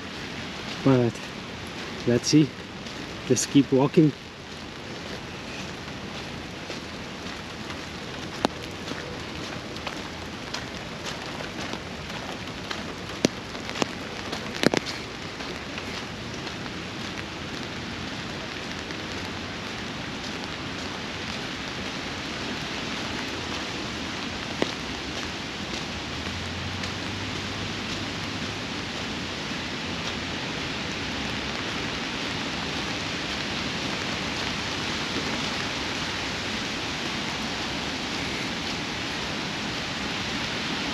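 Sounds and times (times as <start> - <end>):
steady rain falling: 0.0 - 40.9
sharp taps of raindrops: 0.1 - 29.1.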